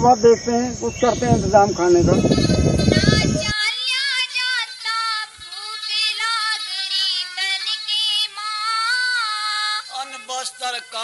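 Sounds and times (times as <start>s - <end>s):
woman singing: 3.0s - 9.9s.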